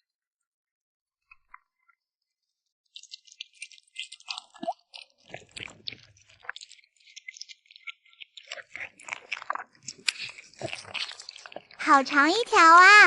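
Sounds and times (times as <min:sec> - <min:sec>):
kitten chewing meat: 0:02.9 - 0:12.2.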